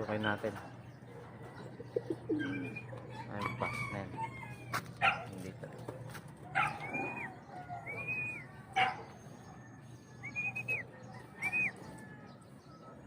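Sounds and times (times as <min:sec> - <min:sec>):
high whistled bird calls: 0:06.6 - 0:08.5, 0:09.6 - 0:11.9.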